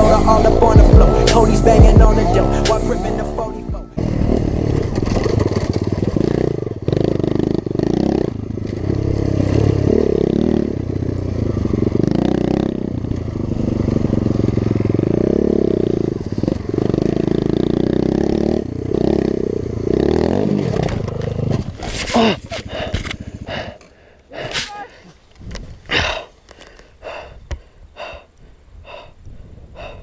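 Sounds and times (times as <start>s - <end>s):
dirt bike engine revving: 0.0s - 23.9s.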